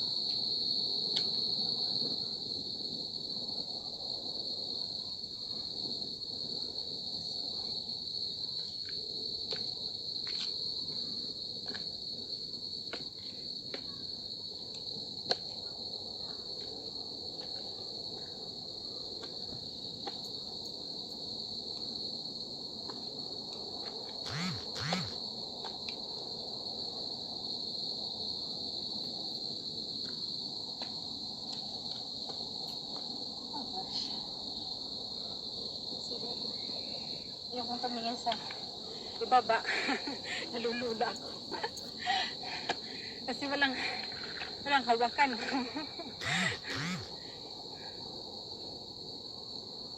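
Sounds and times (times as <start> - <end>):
insects chirring: 0.0 - 49.9.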